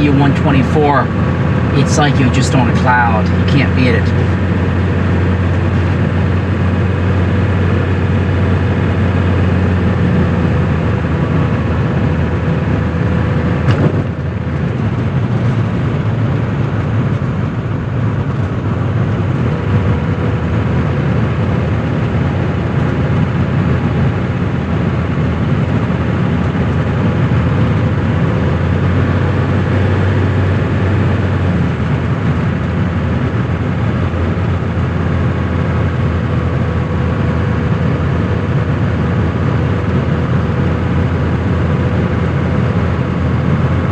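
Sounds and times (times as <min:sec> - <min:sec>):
diesel engine running: 0:00.0 - 0:43.9
road noise: 0:00.0 - 0:43.9.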